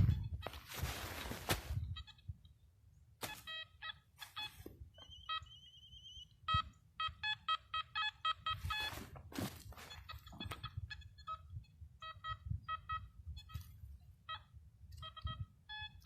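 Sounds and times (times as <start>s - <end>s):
metal detector beeps: 0.0s - 0.9s, 1.7s - 2.4s, 3.2s - 16.0s
short scraping noises: 0.5s - 1.8s.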